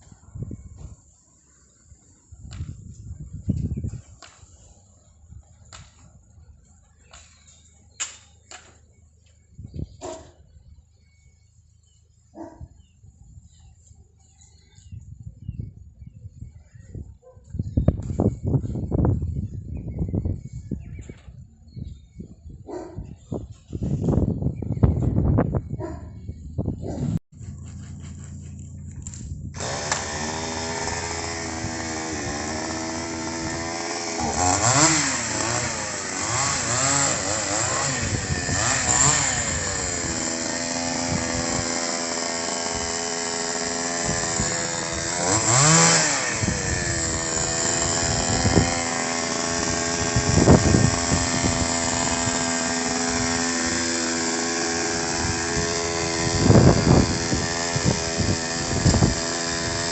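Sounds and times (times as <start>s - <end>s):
chainsaw revving: 27.8s - 59.9s.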